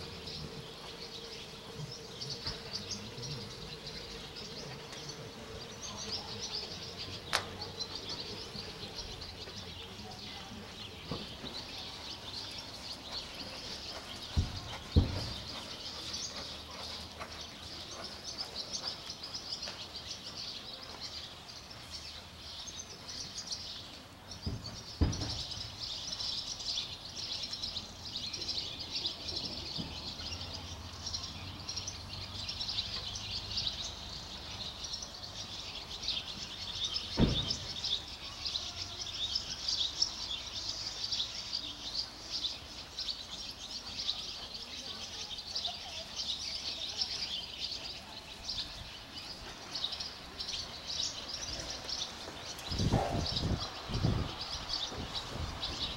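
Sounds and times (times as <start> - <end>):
small birds chirping: 0.0 - 55.9
dull low thumps: 13.5 - 16.2.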